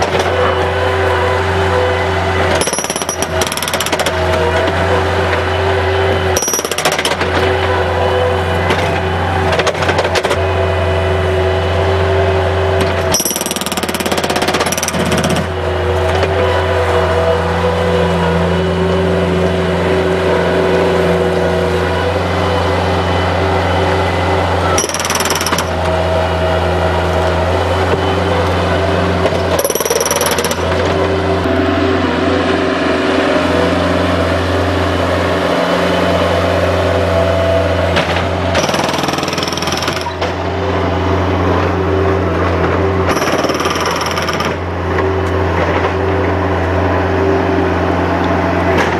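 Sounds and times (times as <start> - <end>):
loader engine running under load: 0.0 - 48.9
hammering breaking concrete: 2.6 - 4.3.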